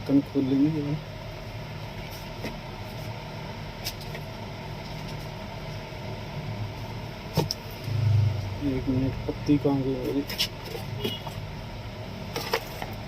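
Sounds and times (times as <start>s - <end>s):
low hum: 7.6s - 10.0s.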